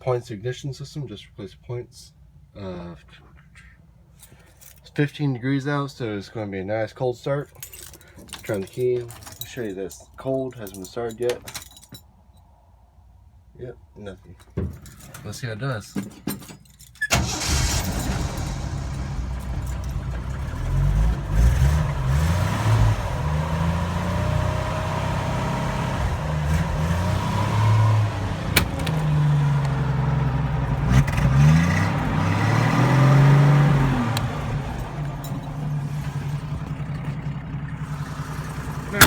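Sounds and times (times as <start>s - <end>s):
starter motor cranking: 17.1s - 21.6s, 26.5s - 39.0s
car engine running: 17.1s - 39.0s.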